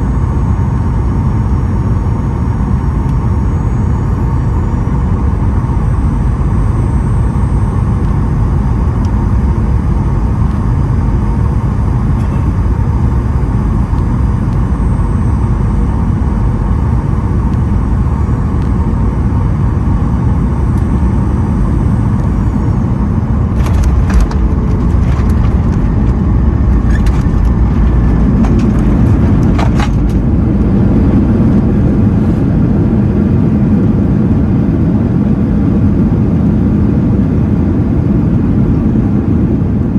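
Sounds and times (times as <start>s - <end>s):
aircraft cabin engine rumble: 0.0s - 39.9s
knocks and rattles: 23.6s - 30.6s.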